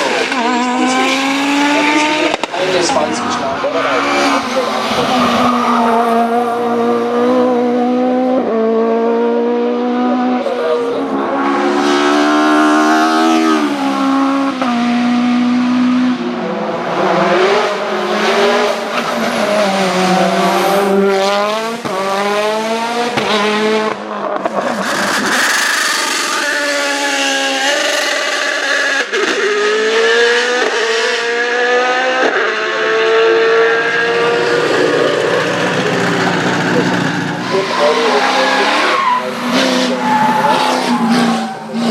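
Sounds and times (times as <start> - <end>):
race car engine revving: 0.0 - 41.9
tire squeal: 0.3 - 6.0, 34.2 - 41.9.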